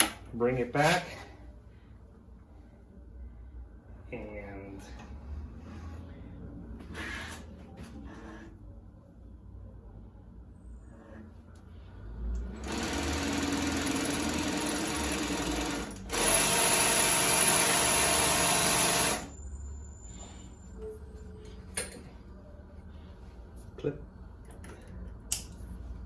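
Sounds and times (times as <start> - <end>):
sewing machine running: 12.5 - 19.3.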